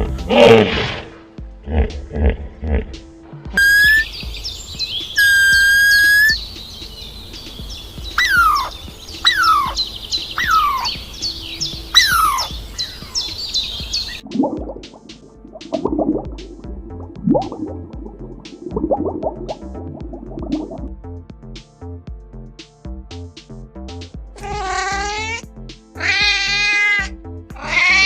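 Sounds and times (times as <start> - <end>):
falling bird calls: 3.6 - 14.2, 27.6 - 28.0
high-pitched bird chatter: 3.6 - 14.2
long whistled bird notes: 3.6 - 14.2.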